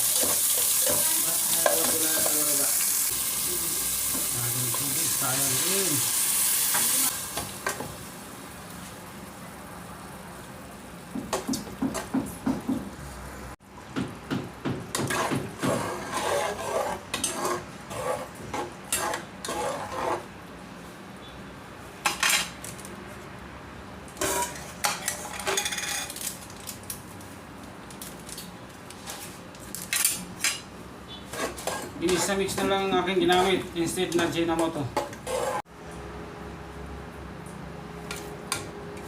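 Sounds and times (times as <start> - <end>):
metal utensil scraping a pan: 15.0 - 20.3, 24.2 - 26.2, 31.3 - 35.6.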